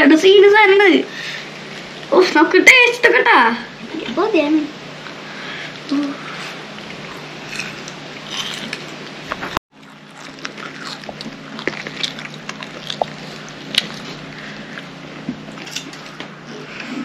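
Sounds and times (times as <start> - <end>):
steady low hum: 0.0 - 17.0
chocolates crunched and chewed: 7.4 - 9.0, 9.8 - 14.9.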